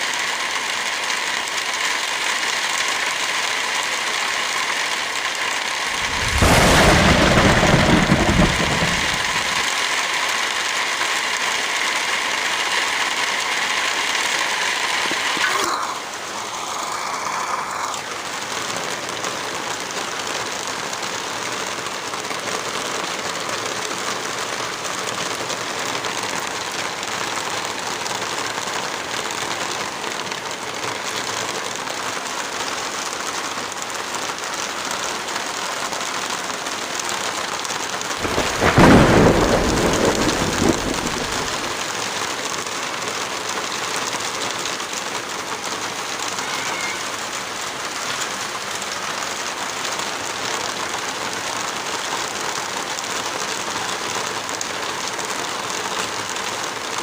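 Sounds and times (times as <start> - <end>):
heavy rain falling: 0.0 - 57.0
thunderclap rumbling: 5.9 - 9.7, 38.2 - 42.0.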